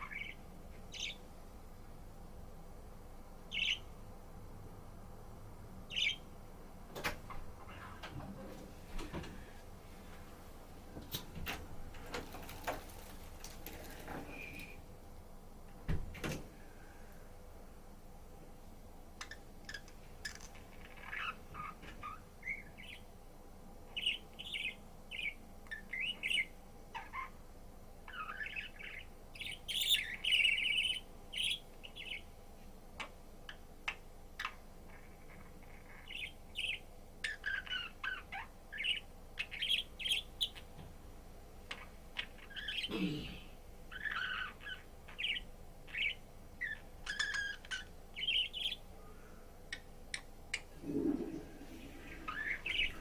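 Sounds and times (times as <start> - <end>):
budgerigar chirping and warbling: 0.0 - 1.2, 3.5 - 3.9, 5.9 - 6.2, 19.2 - 23.0, 24.0 - 27.4, 28.1 - 32.2, 33.9 - 40.7, 41.7 - 43.0, 43.9 - 48.8, 52.1 - 53.0.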